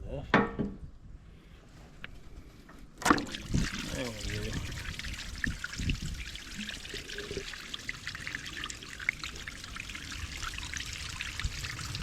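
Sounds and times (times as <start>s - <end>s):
coolant pouring from hose: 3.0s - 12.0s.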